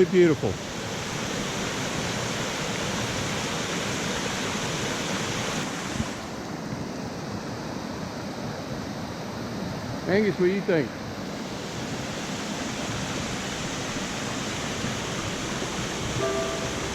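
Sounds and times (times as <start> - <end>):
waterfall rushing: 11.4 - 16.9.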